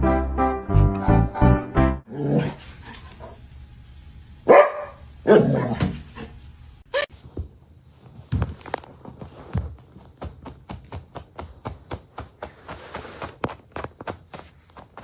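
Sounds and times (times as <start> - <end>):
dog barking: 4.5 - 6.0.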